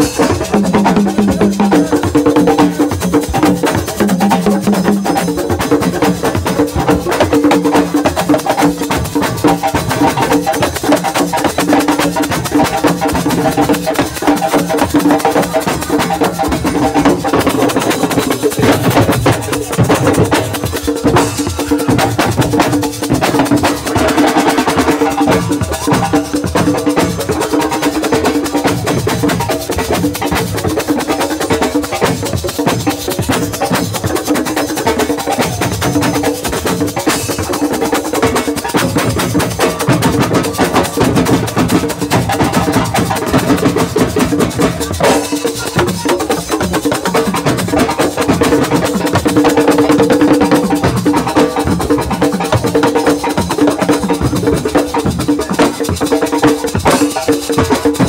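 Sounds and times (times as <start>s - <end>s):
drums: 0.0s - 58.0s
wood block percussion: 0.0s - 58.0s.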